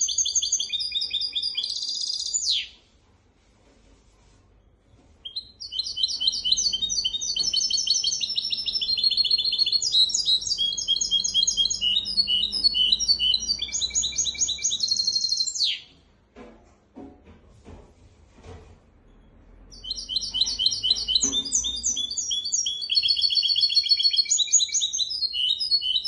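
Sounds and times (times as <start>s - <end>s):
finch singing high trills: 5.3s - 15.9s, 19.7s - 26.0s.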